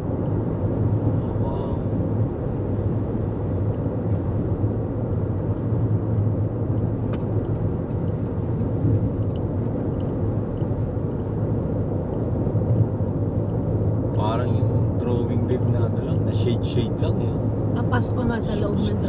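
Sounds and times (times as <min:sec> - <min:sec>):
car road and tyre rumble: 0:00.0 - 0:19.0.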